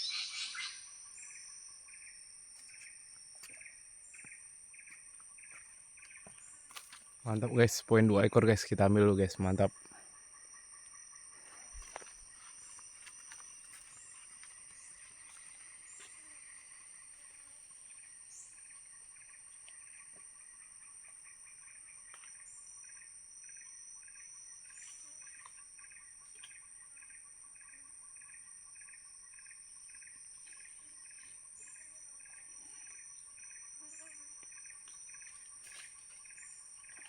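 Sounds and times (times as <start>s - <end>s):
short bird chirps: 0.0s - 1.4s
high-pitched insect drone: 0.0s - 37.0s
rhythmic insect chirping: 0.0s - 37.0s.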